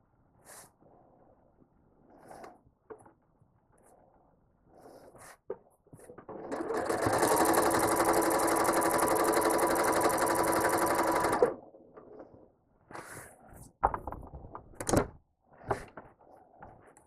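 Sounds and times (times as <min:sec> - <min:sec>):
sewing machine stitching: 0:06.3 - 0:11.6.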